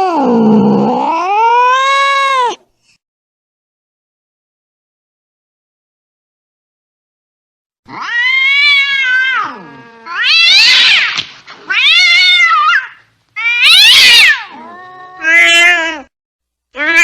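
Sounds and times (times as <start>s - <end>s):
angry cat yowling: 0.0s - 2.6s, 7.9s - 16.1s, 16.8s - 17.0s.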